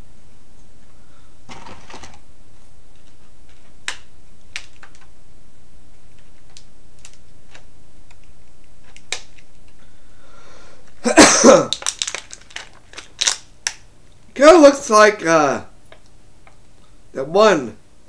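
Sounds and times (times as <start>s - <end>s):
loud plastic clatter: 1.5s - 2.2s.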